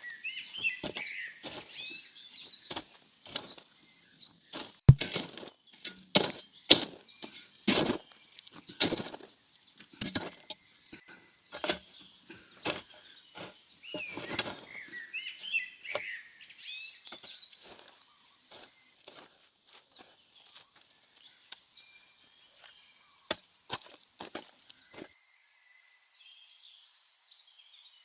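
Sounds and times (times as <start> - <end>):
sharp knocks: 4.9 - 5.2
birds chirping: 6.0 - 19.0.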